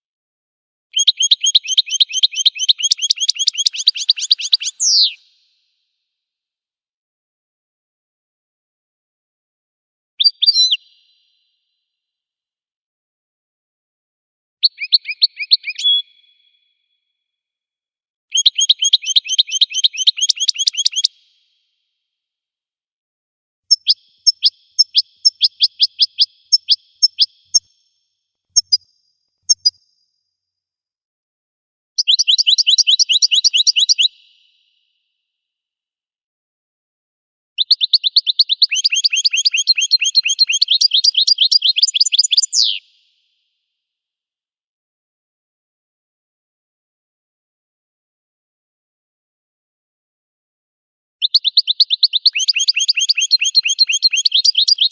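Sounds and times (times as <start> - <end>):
goldfinch song: 0.9 - 5.6, 10.2 - 11.6, 14.6 - 17.0, 18.3 - 21.4, 23.7 - 29.9, 32.0 - 35.0, 37.6 - 43.1, 51.2 - 54.9.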